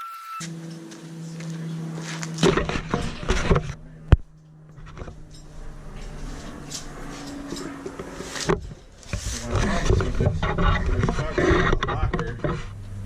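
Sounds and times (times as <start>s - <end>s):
steady hum: 0.5s - 13.0s
metal clanking and knocking: 2.4s - 12.7s.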